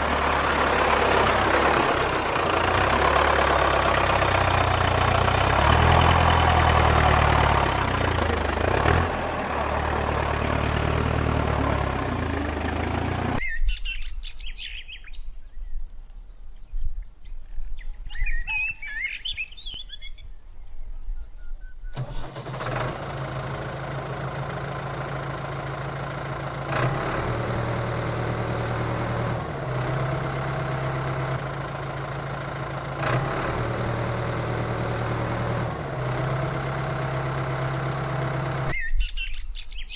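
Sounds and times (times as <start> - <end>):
engine humming: 0.0 - 13.4, 21.9 - 38.8.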